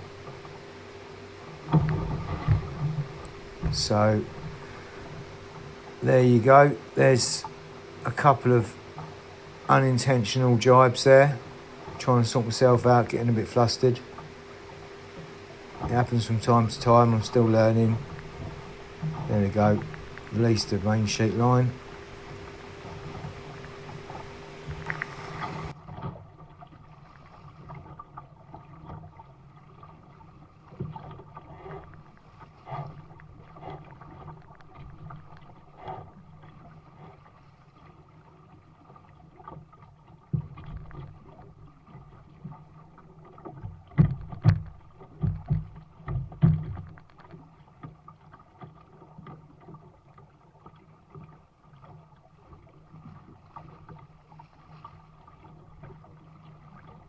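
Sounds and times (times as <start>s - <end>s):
boat knocks and thumps: 0.0s - 26.9s, 39.4s - 50.0s
water slapping against a hull: 0.0s - 57.0s.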